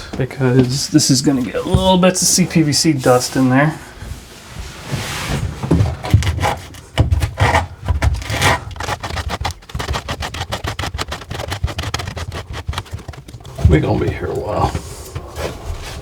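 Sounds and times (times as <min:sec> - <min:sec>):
sanding plastic pipe by hand: 0:06.0 - 0:14.5.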